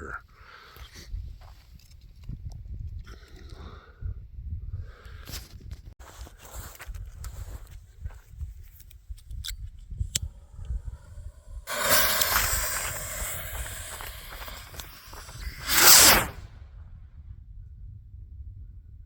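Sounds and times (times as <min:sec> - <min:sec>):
rocket motor hiss: 0:11.0 - 0:16.4
firework shell bang: 0:11.7 - 0:16.4.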